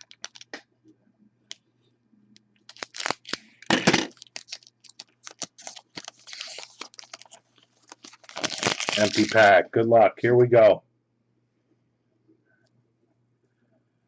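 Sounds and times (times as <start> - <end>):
wrapper crinkling: 0.0 - 0.5, 2.6 - 9.6
cards clicking and rustling: 2.7 - 9.4.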